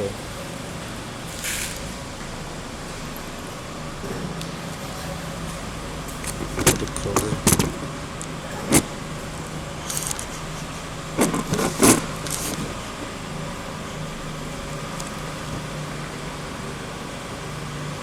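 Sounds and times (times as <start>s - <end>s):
steady low hum: 0.0s - 18.0s
plastic parts clicking: 6.2s - 8.9s, 9.9s - 10.4s.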